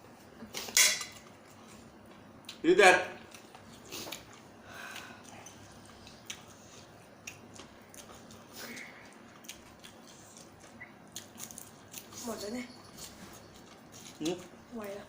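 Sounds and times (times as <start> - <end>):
person chewing food: 3.3 - 12.2, 12.9 - 14.6.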